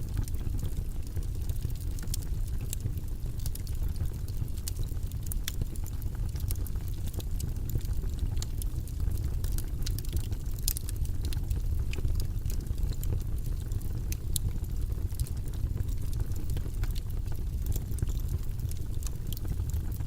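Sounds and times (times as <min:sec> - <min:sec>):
low rumbling white noise: 0:00.0 - 0:20.0
light irregular clicks: 0:09.5 - 0:13.2.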